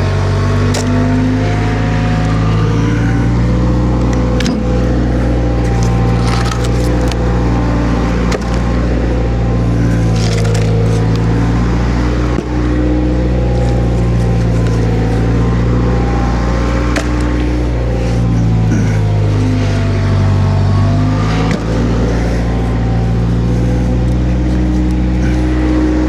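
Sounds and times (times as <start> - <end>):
skid steer engine running: 0.0 - 26.0.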